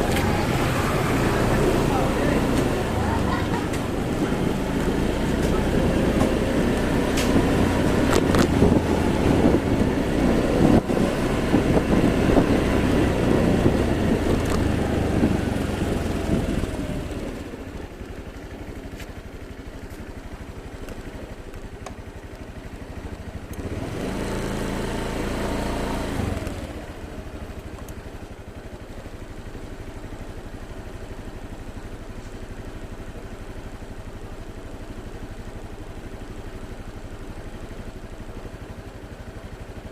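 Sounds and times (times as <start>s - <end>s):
wind and road rush: 0.0s - 18.0s, 22.5s - 27.4s
motorbike engine running: 0.0s - 39.9s.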